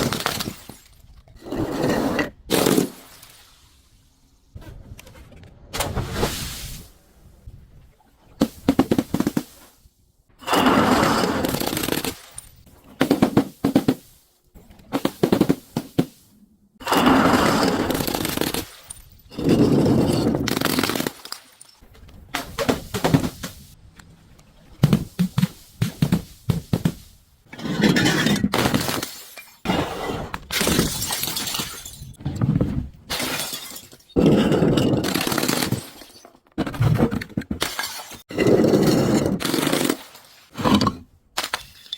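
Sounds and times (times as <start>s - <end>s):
glass bottles shattering: 0.0s - 1.1s, 17.5s - 21.8s, 27.8s - 29.8s, 30.5s - 32.2s, 33.1s - 36.5s, 37.6s - 38.3s, 40.7s - 41.9s.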